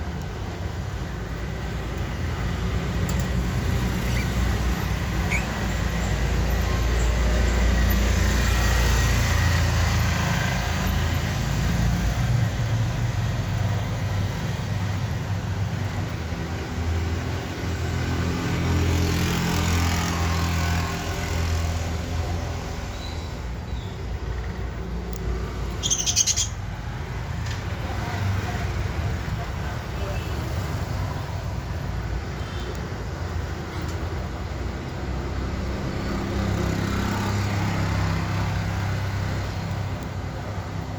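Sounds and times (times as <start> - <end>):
budgie chirping: 3.8 - 6.1, 25.7 - 26.7.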